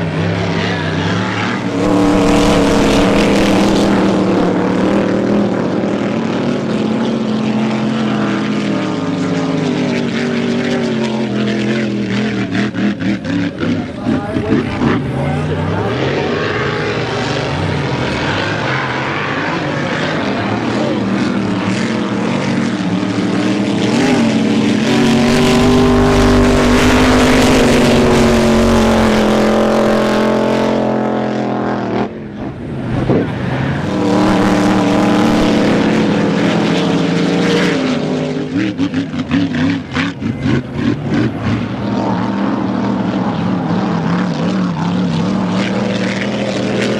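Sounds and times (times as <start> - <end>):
boat engine running loud: 0.0 - 46.9.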